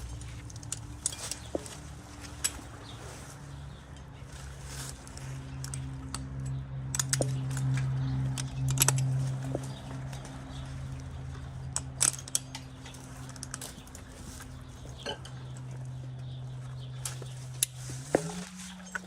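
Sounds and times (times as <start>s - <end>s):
light metallic clinks: 0.0s - 3.0s, 4.9s - 17.8s.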